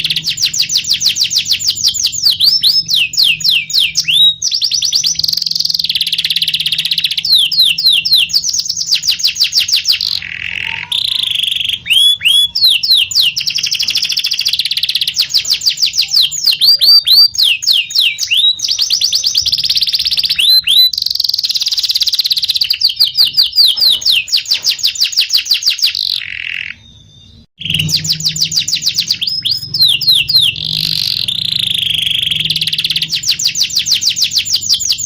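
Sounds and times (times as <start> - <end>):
canary singing: 0.0 - 35.0.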